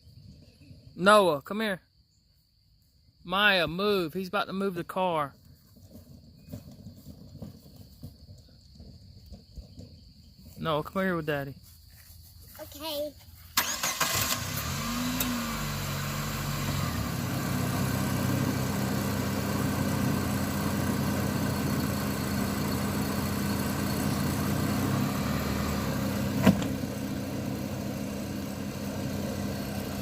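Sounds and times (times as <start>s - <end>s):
car engine idling: 13.6s - 30.0s.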